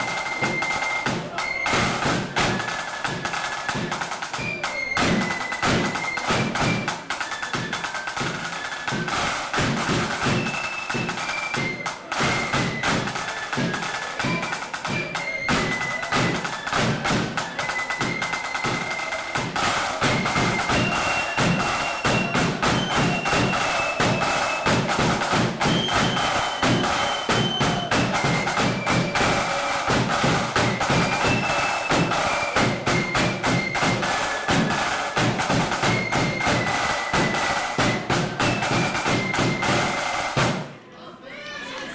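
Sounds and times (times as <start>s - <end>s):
flutes playing melody: 0.0s - 40.6s
snare drumming: 0.0s - 40.8s.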